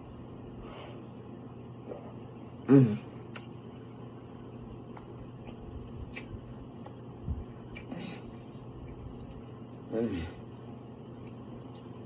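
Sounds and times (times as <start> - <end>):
wet chewing: 1.4 - 12.0
small mouth clicks: 3.3 - 3.6, 6.0 - 7.0, 7.7 - 7.9.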